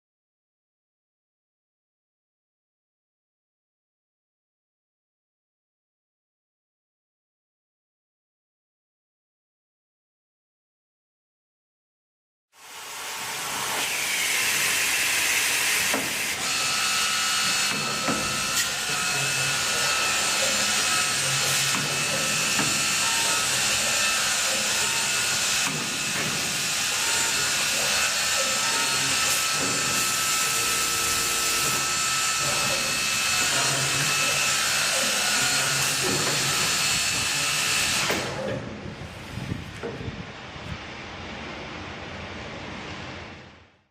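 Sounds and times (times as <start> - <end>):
boring machine spindle whine: 12.6 - 38.9.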